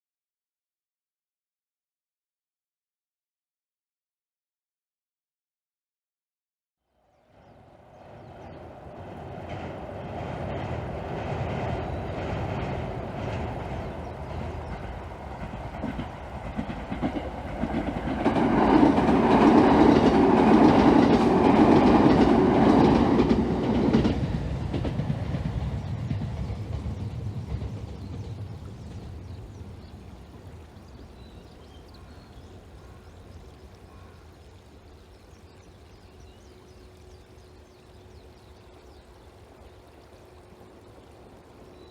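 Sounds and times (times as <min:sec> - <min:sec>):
electric train passing: 0:07.3 - 0:31.9, 0:34.4 - 0:41.9.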